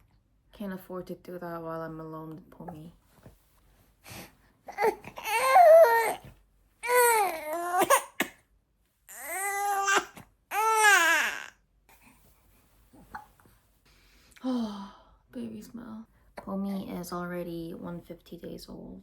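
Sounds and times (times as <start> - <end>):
baby crying: 4.7 - 8.3, 9.1 - 11.6.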